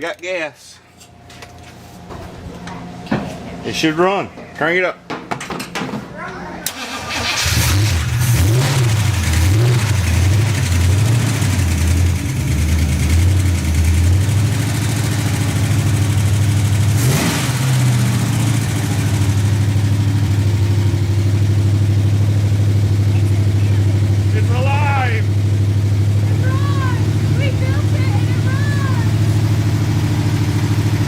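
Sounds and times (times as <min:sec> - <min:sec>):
truck engine running: 0:06.7 - 0:31.0.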